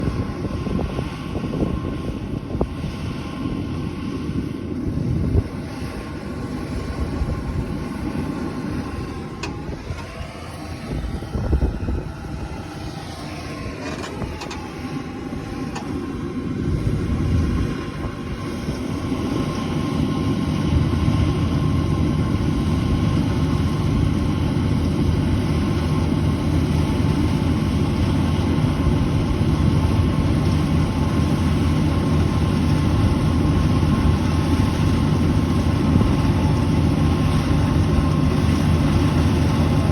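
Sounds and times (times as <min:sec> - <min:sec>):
combine harvester engine and machinery: 0:00.0 - 0:39.9.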